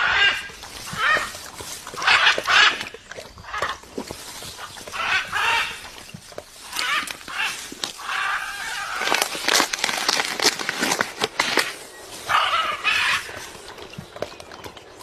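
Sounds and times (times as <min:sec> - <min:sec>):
macaw harsh calls: 0:00.0 - 0:03.8, 0:04.9 - 0:06.0, 0:06.7 - 0:09.4, 0:12.2 - 0:13.4.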